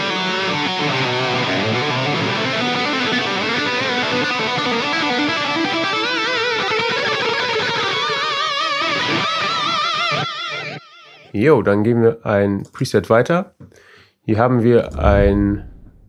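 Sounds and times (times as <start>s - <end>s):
distorted electric guitar solo: 0.0s - 9.7s.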